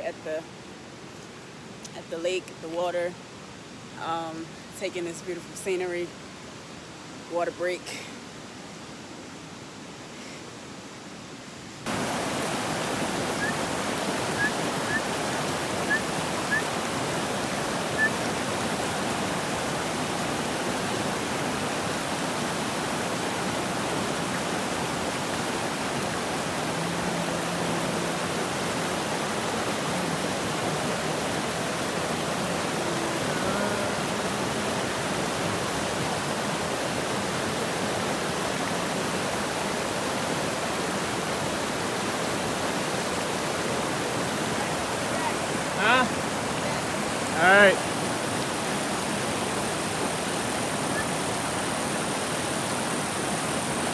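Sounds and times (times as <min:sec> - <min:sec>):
flowing water rushing: 0:11.8 - 0:53.9.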